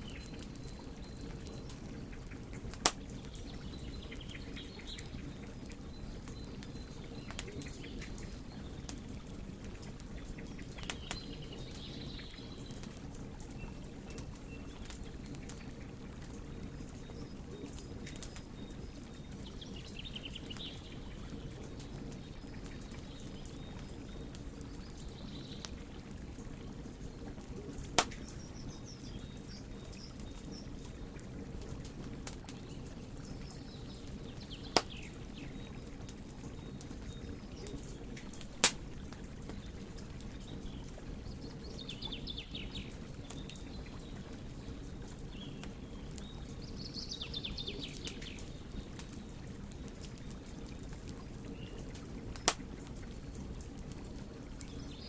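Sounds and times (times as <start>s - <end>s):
wood fire rumbling and crackling: 0.0s - 55.0s
loud fire pops: 2.6s - 3.4s, 27.8s - 28.3s, 34.7s - 35.1s, 38.3s - 39.1s, 52.4s - 52.8s.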